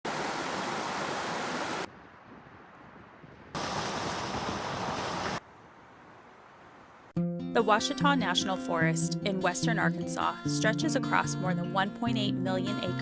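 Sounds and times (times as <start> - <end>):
rushing falling water: 0.0 - 1.9, 3.6 - 5.4.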